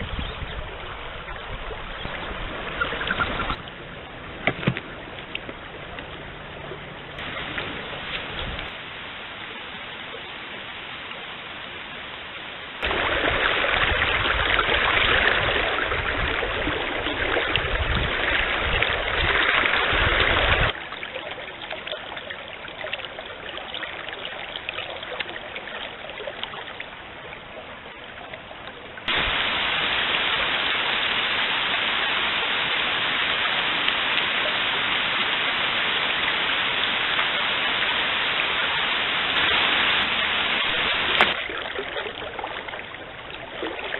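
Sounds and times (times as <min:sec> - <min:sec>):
stream water over rocks: 0:00.0 - 0:43.9.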